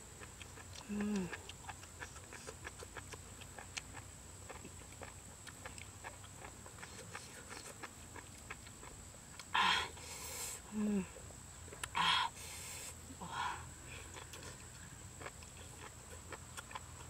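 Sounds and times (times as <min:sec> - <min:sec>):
chewing and lip-smacking: 0:00.0 - 0:10.6, 0:11.2 - 0:12.0, 0:13.9 - 0:17.0
person humming: 0:00.8 - 0:01.4, 0:10.7 - 0:11.2.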